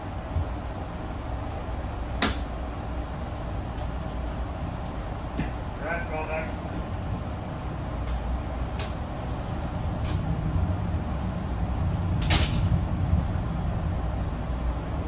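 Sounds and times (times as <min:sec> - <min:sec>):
train rumbling along track: 0:00.0 - 0:15.0
train clanks and rattles: 0:07.5 - 0:14.8.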